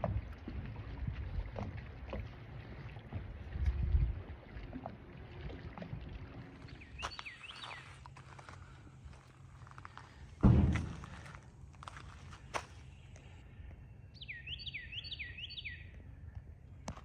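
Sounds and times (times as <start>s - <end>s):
water and wind rumble: 0.0s - 17.0s
knocks on boat: 10.4s - 11.4s.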